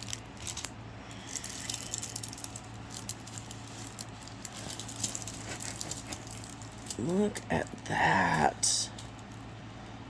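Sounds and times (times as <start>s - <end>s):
packaging rustling: 0.0s - 7.8s
steady low hum: 0.0s - 10.0s.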